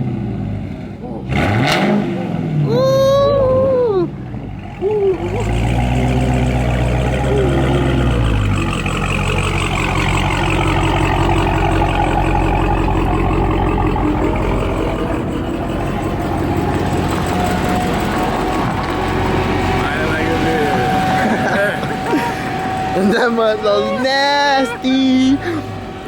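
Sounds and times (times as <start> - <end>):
loud car engine running: 0.0 - 26.0.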